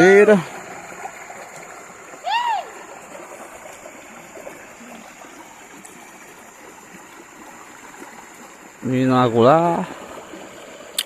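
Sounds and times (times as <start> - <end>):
waterfall rushing: 2.1 - 4.8.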